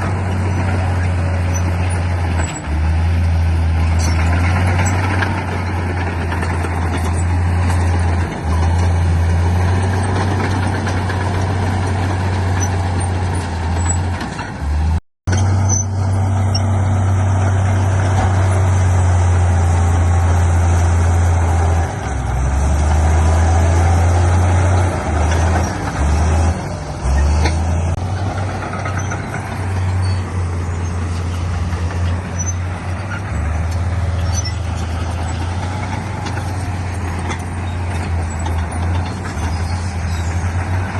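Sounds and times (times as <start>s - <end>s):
heavy diesel machinery engine drone: 0.0s - 40.9s.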